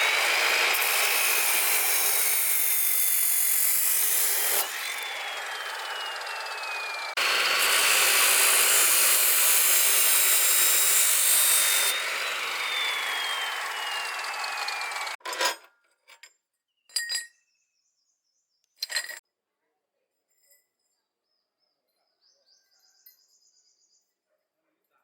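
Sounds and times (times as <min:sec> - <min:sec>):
power tool whining: 0:00.0 - 0:15.2.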